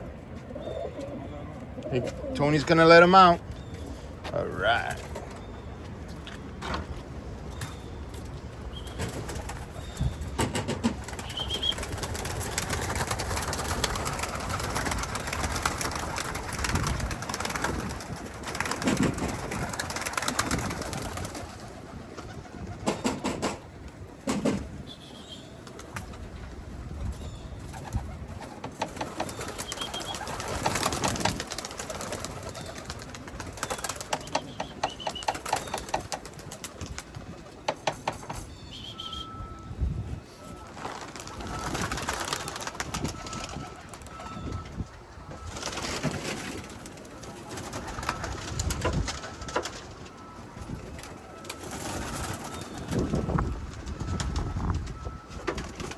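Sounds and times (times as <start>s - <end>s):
pigeons cooing: 0.1s - 5.4s, 27.7s - 39.4s.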